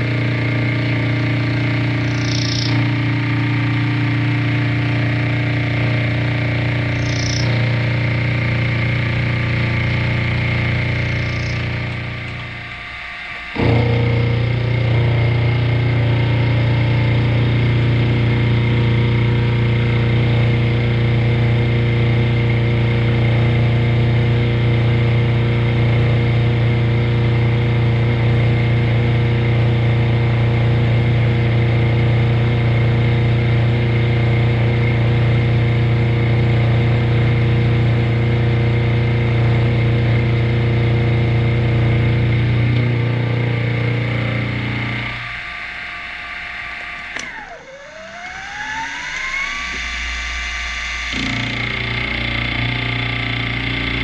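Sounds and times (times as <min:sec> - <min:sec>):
high thin whine: 0:00.0 - 0:20.6, 0:44.1 - 0:54.0
milling machine motor hum: 0:00.0 - 0:54.0.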